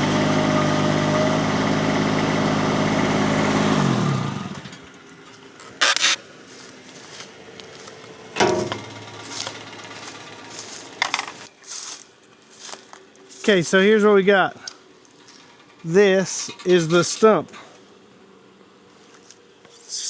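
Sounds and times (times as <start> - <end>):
diesel engine running: 0.0 - 20.0
sharp knocks: 8.4 - 8.9.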